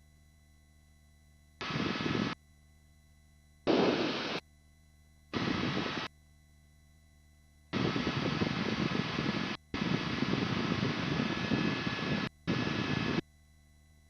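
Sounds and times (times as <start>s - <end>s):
faint steady hum: 0.0s - 14.0s
helicopter engine and rotor noise: 7.7s - 13.2s.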